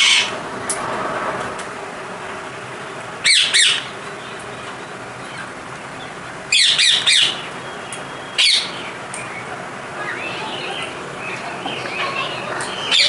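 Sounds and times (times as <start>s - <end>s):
parrots chattering calls: 0.0s - 0.4s, 3.2s - 3.9s, 6.5s - 13.0s
parrots squawking: 0.0s - 0.4s, 3.2s - 3.9s, 6.5s - 7.5s, 8.3s - 8.9s, 10.0s - 13.0s.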